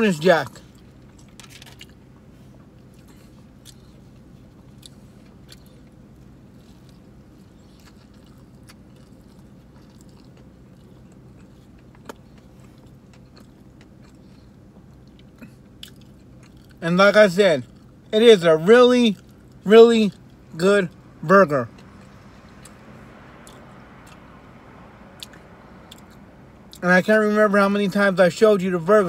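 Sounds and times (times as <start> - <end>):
car cabin hum: 0.0 - 29.0
person chewing food: 0.6 - 16.8, 21.7 - 24.5, 25.1 - 26.8.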